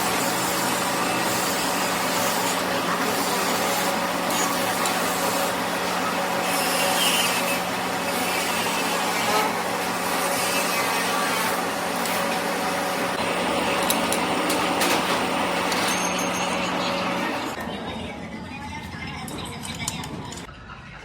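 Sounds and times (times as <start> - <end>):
machine running with hum and hiss: 0.0 - 19.4.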